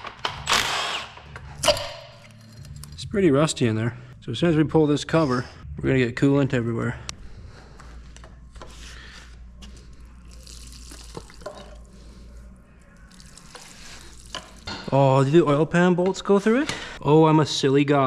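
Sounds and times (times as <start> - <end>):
coolant trickling and dripping: 10.2 - 12.0, 13.0 - 14.7.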